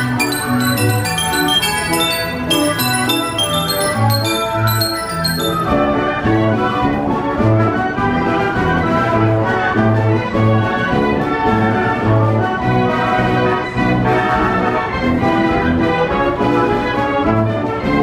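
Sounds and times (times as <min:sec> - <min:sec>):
carousel band organ playing: 0:00.0 - 0:06.0.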